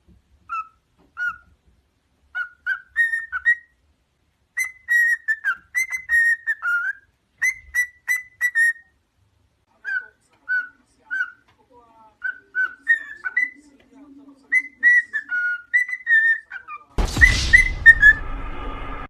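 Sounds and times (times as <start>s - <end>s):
bird whistling short notes: 17.2s - 18.2s.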